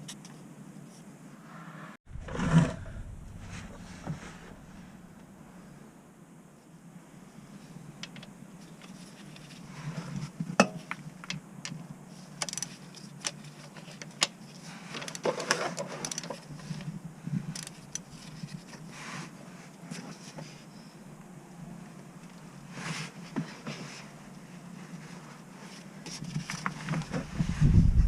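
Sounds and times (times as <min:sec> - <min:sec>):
steady low hum: 0:02.1 - 0:12.2.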